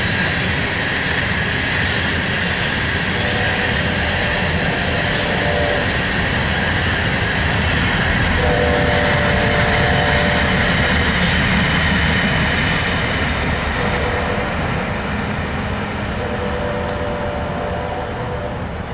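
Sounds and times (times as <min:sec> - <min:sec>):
train wheels rumbling on rail: 0:00.0 - 0:18.9
locomotive air horn: 0:03.1 - 0:06.1, 0:08.4 - 0:10.8, 0:13.8 - 0:14.8, 0:16.2 - 0:18.7.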